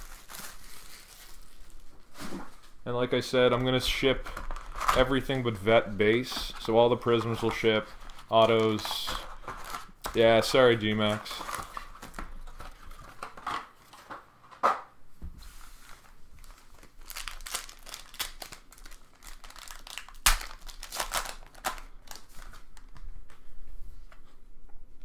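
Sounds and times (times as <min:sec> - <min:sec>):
foil wrappers crinkling and tearing: 0:00.0 - 0:02.2, 0:03.4 - 0:14.1, 0:15.6 - 0:23.0
sharp wrapper snaps: 0:17.0 - 0:22.2.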